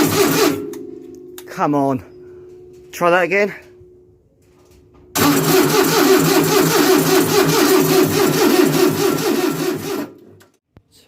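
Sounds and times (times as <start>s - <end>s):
starter motor cranking engine: 0.0s - 0.6s, 5.2s - 10.5s.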